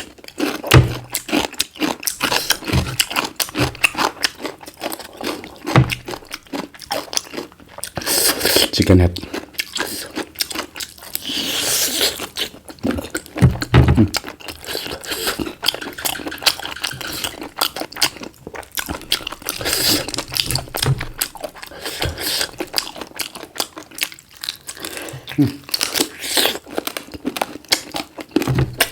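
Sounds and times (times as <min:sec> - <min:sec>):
crunching and chewing food: 0:00.0 - 0:28.9
low thumps: 0:00.7 - 0:01.2, 0:13.4 - 0:14.2, 0:28.5 - 0:28.9.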